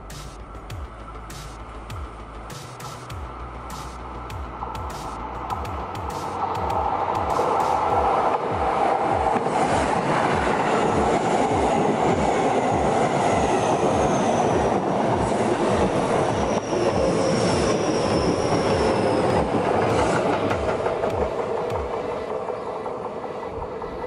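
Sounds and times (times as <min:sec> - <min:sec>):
train wheels clacking over rail joints: 0:05.5 - 0:23.8.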